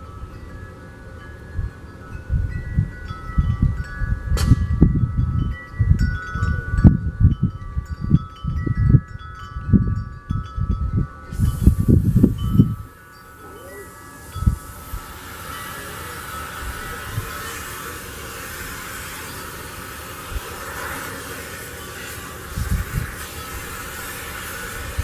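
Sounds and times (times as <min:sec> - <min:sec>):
wind chimes ringing: 0:00.0 - 0:25.0.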